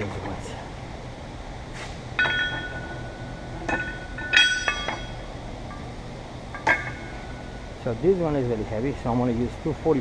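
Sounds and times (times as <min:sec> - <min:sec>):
metal weight plates clanking: 0:02.2 - 0:07.6.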